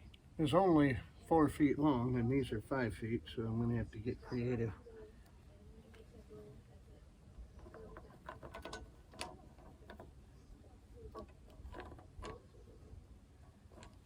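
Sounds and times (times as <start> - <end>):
tools clicking and knocking: 7.6 - 10.3, 11.0 - 12.6, 13.6 - 14.0.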